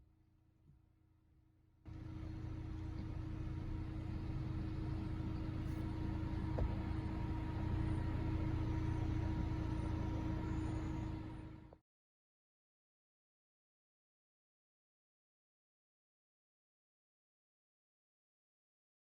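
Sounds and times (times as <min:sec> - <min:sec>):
car engine and road noise: 0:01.9 - 0:11.8.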